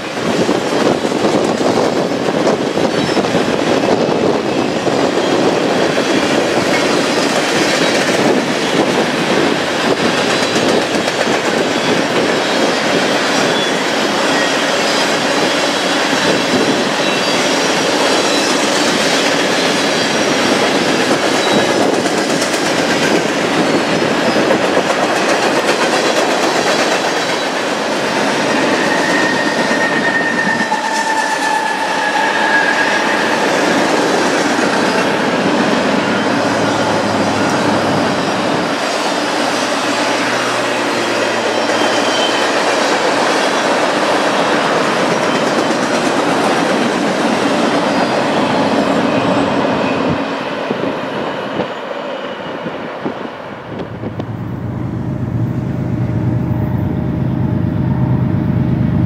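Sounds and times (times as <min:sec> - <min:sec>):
train wheels clattering on rails: 0:00.0 - 0:54.6
high wheel squeal: 0:11.6 - 0:20.5, 0:28.4 - 0:33.9, 0:35.8 - 0:42.8.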